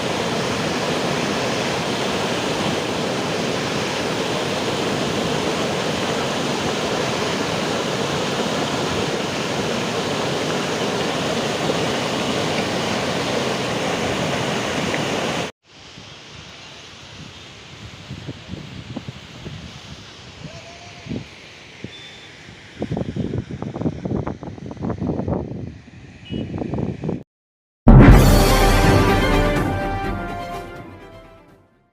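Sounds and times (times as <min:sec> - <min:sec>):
water rushing in a torrent: 0:00.0 - 0:24.1.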